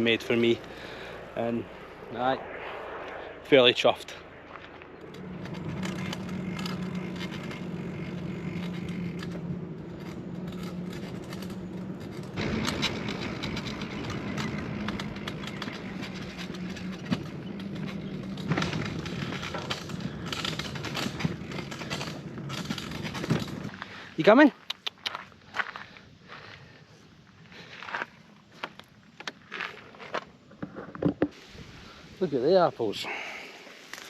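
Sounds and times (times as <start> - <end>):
bicycle rolling on road: 0.0 - 2.9, 3.8 - 24.4, 25.2 - 32.0
bicycle rattles and clicks: 4.6 - 26.7.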